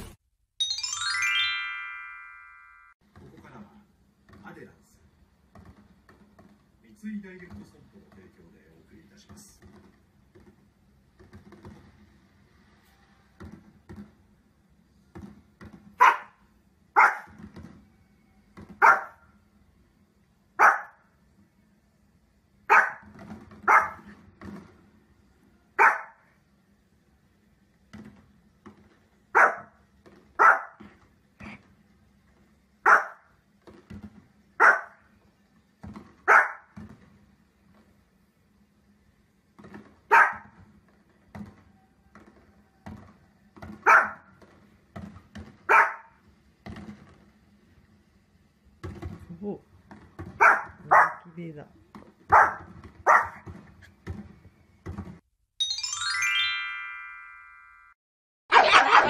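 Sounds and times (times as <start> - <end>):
small dog barking: 16.0 - 16.4, 17.0 - 17.4, 18.8 - 19.2, 20.6 - 21.0, 22.7 - 23.1, 23.7 - 24.1, 25.8 - 26.2, 29.4 - 29.7, 30.4 - 30.8, 32.9 - 33.3, 34.6 - 35.0, 36.3 - 36.7, 40.1 - 40.5, 43.9 - 44.2, 45.7 - 46.2, 50.4 - 51.3, 52.3 - 53.4, 58.5 - 59.0.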